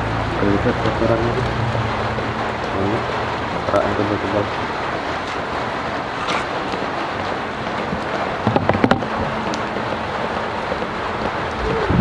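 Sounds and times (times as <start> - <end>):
steady rain: 0.0 - 12.0
knocks: 8.4 - 9.1
wind noise on microphone: 11.4 - 12.0.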